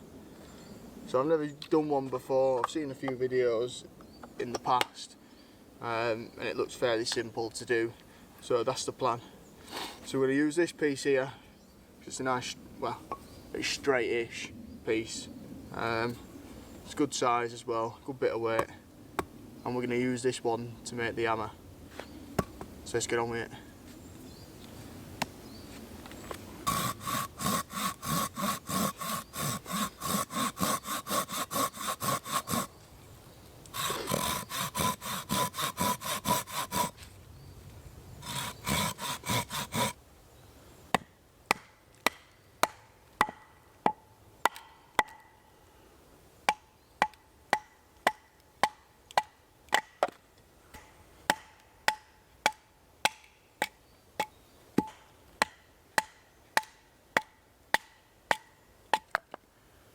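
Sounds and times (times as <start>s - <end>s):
hand saw cutting wood: 26.6s - 32.7s, 33.6s - 37.1s, 38.2s - 40.0s.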